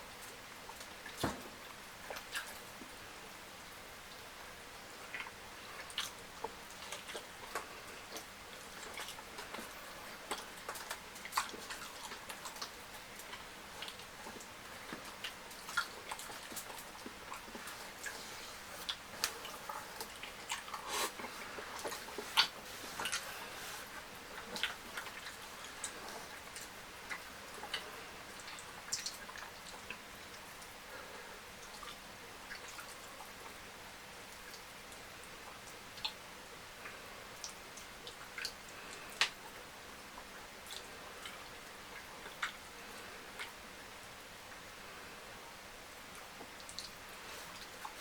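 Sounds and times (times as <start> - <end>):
wet chewing: 5.0 - 30.4, 40.2 - 43.6.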